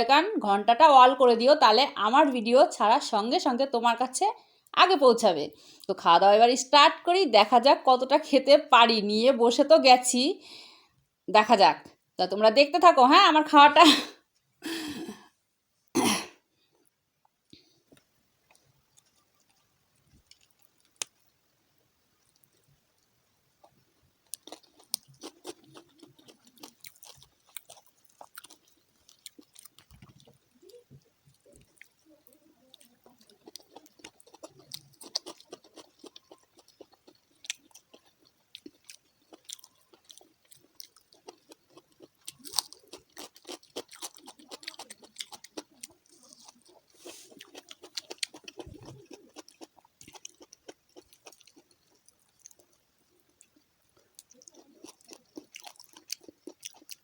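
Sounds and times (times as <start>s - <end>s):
crunchy chewing: 17.5s - 57.0s.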